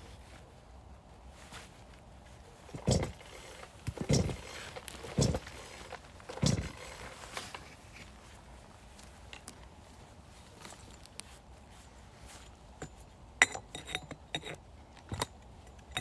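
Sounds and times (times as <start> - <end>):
heavy blows splitting firewood: 2.7 - 7.3.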